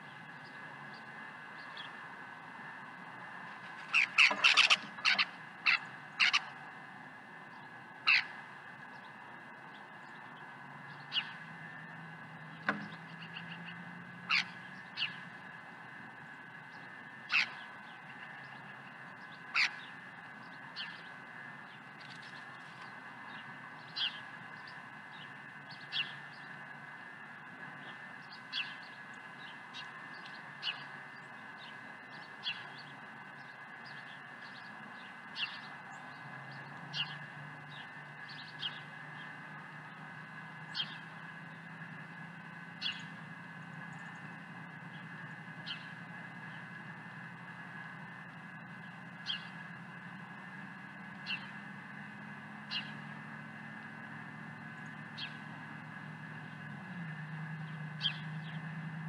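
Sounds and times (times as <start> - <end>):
steady background hum: 0.0 - 56.9
low engine-like drone: 0.0 - 59.0
bird calling sharply: 3.9 - 6.4.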